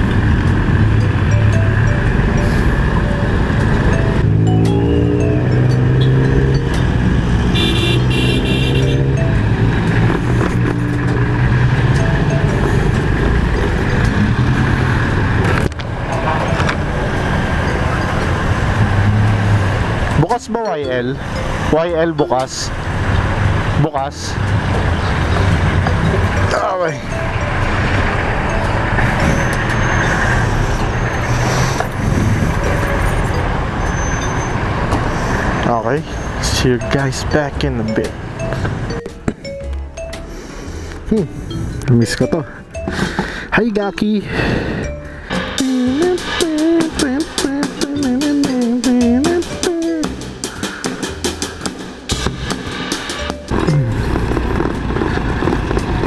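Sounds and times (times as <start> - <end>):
road and wind noise: 0.0 - 56.0
high two-part tone: 53.2 - 54.1.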